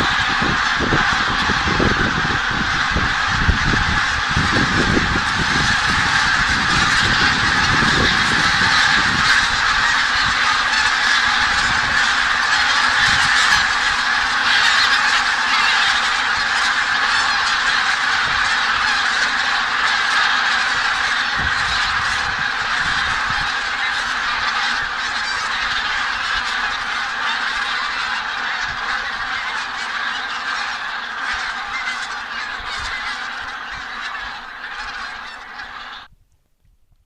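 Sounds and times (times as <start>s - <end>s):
geese honking: 0.0s - 36.1s.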